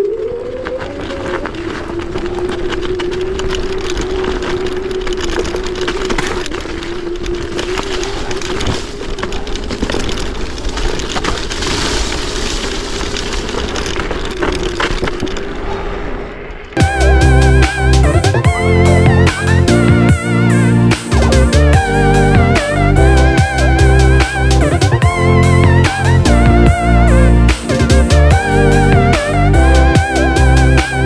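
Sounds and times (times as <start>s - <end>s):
crackling rattling ride noise: 0.0s - 15.5s, 16.8s - 31.0s.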